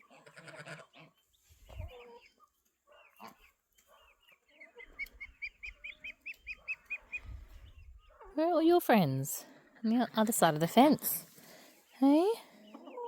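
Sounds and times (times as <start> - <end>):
chickens calling: 0.0 - 13.0.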